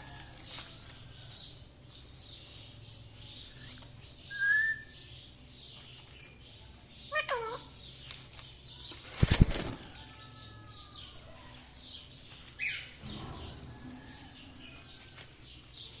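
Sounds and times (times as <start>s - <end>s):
parrot wings fluttering: 8.1s - 10.2s.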